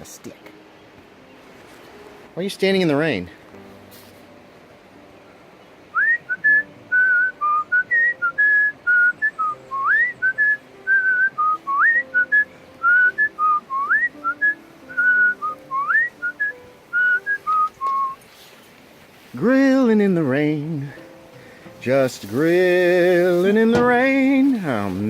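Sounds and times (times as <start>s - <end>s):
person whistling a tune: 5.9s - 18.2s.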